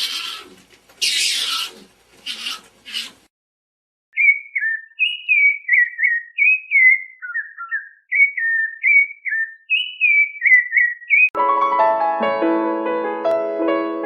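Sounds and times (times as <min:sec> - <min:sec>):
whistled notes slurring downward: 0:04.2 - 0:11.4.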